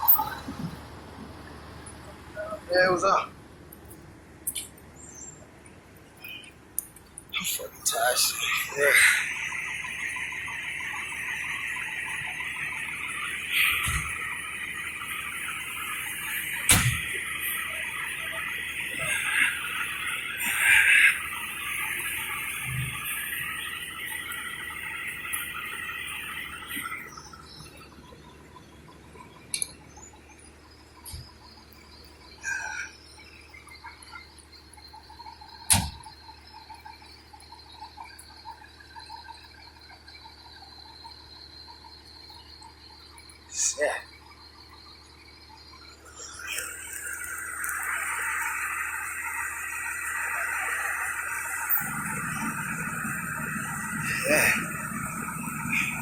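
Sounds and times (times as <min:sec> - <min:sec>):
insects chirping: 0:00.0 - 0:56.0
vehicle engine rumble: 0:00.0 - 0:56.0
birds chirping: 0:03.8 - 0:56.0
steady high hiss: 0:07.4 - 0:27.6, 0:45.8 - 0:56.0.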